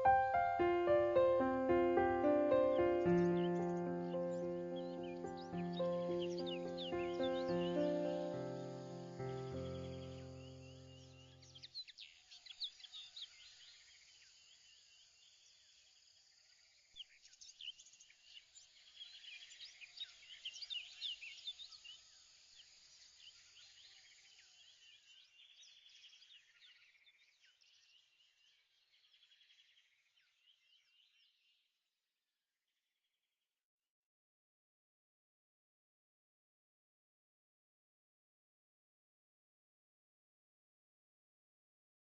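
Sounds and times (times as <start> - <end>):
birds chirping and trilling: 0.0 - 13.7.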